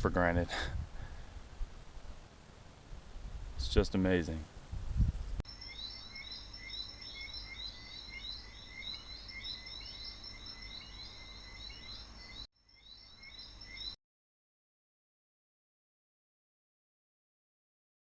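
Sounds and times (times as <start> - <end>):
high chirps chorus: 5.5 - 14.0.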